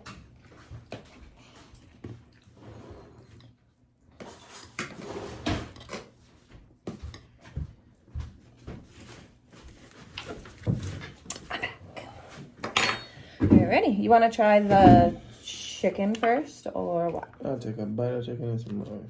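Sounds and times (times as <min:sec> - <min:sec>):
kitchen drawer opening and shutting: 0:04.2 - 0:06.1, 0:14.6 - 0:15.3
cutlery and dishes clattering: 0:12.6 - 0:13.6.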